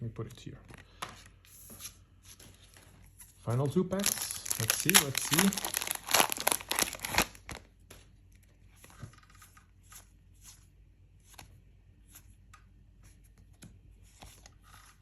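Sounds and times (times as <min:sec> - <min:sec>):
trading cards rustling: 0:03.9 - 0:07.6
foil pack crinkle: 0:03.9 - 0:07.7.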